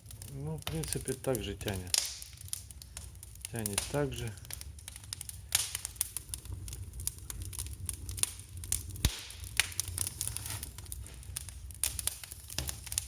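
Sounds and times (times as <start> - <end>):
fire crackling: 0.0 - 13.0
low fire rumble: 0.0 - 13.0
sharp crack of fire: 0.0 - 13.0.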